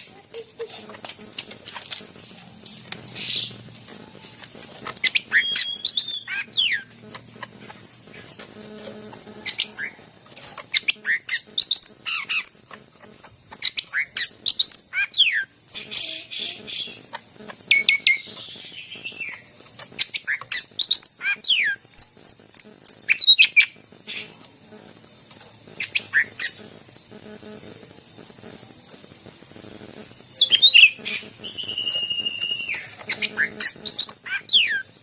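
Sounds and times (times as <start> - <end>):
steady high-pitched whine and hiss: 0.0 - 35.0
bird singing whistled phrases: 5.1 - 6.9, 30.4 - 34.8.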